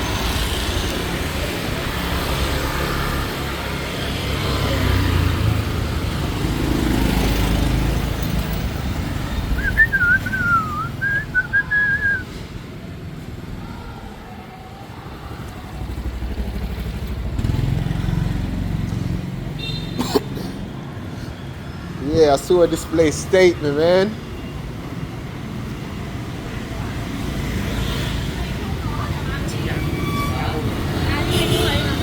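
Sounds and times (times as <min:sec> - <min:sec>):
motorcycles passing: 0:00.0 - 0:32.0
high wavering whistle: 0:09.6 - 0:12.4.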